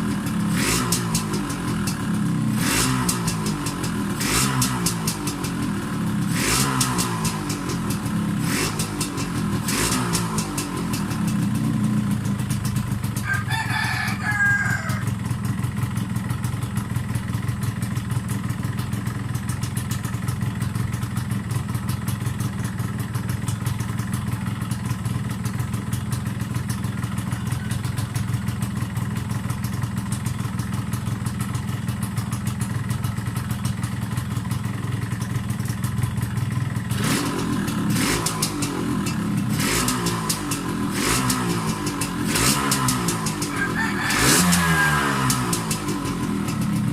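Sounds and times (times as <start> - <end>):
motorcycle engine idling: 0.0 - 46.9
rooster crowing: 13.2 - 15.2, 43.4 - 45.6.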